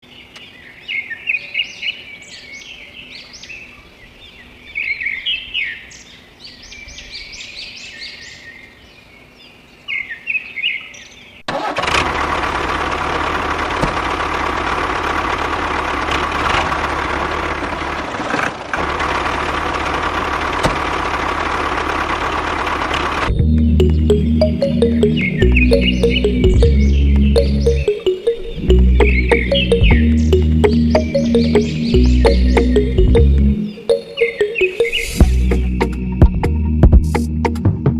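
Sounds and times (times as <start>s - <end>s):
loud steady engine running: 11.8s - 23.3s
birds chirping: 23.3s - 37.5s.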